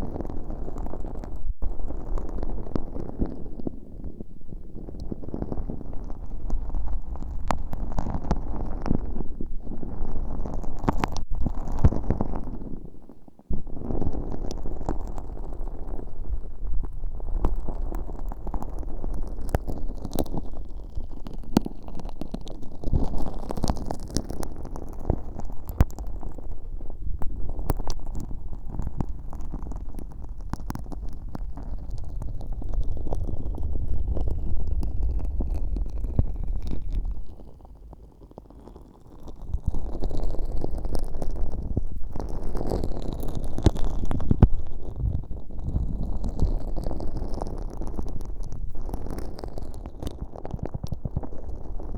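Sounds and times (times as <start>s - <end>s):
slime squelching and crackling: 0.0s - 51.9s
low rumble: 24.6s - 37.6s.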